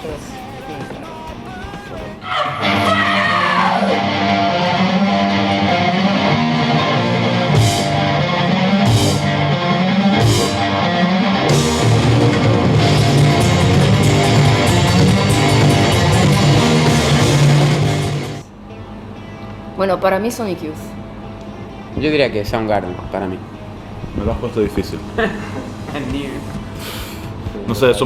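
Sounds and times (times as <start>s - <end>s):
heavy rock music: 0.0s - 18.5s
guitar slide: 2.2s - 19.6s
fast hi-hat pattern: 12.6s - 18.4s.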